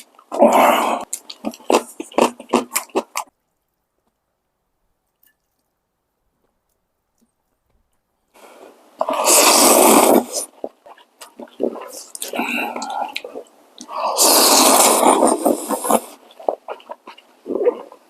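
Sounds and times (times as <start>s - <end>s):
wet mouth clicks and chewing: 1.0s - 4.2s, 10.4s - 13.9s, 15.0s - 18.0s
loud slurp: 9.0s - 18.0s.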